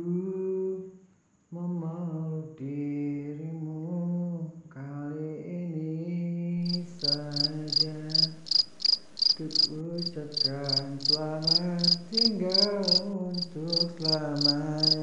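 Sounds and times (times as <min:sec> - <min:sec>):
person humming: 0:06.6 - 0:08.6, 0:09.2 - 0:15.0
cricket-like chirps: 0:06.6 - 0:15.0.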